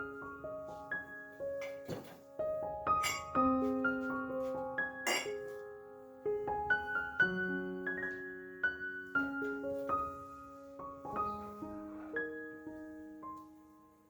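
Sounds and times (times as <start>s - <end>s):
gentle solo piano music: 0.0s - 14.0s
sharp clink: 3.0s - 3.4s, 5.1s - 5.4s.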